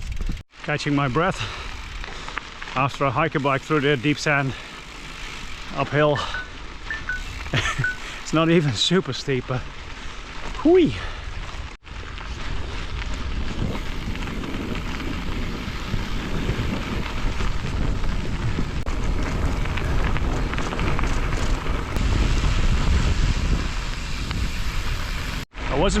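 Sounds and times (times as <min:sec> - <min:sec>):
bike tyres rumbling on gravel: 0:00.0 - 0:26.0
wind buffeting microphone: 0:11.2 - 0:25.5.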